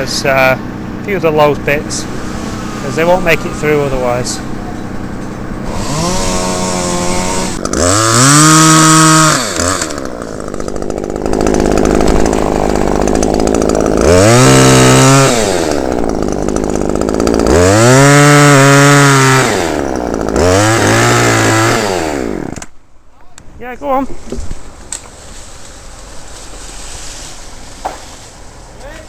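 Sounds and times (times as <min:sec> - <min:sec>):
chainsaw cutting wood: 0:00.0 - 0:22.8, 0:23.9 - 0:28.5.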